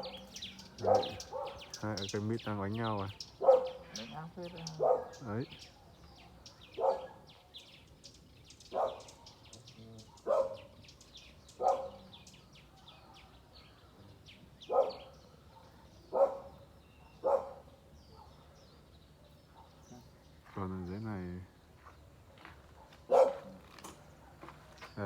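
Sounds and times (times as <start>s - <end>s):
dog barking: 0.0s - 2.1s, 3.4s - 7.7s, 8.7s - 10.8s, 11.5s - 13.5s, 14.6s - 20.0s, 22.3s - 24.6s
small birds chirping: 0.0s - 25.0s.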